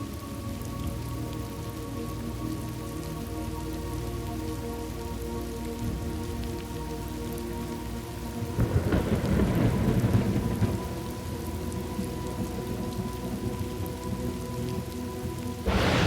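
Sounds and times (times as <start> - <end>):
steady rain falling: 0.0 - 16.0
thunder rumbling: 8.6 - 11.1, 15.6 - 16.0.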